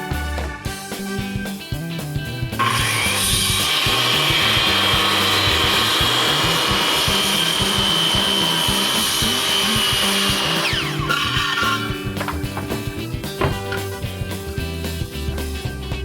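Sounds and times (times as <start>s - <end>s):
power tool whining on wood: 2.6s - 13.8s.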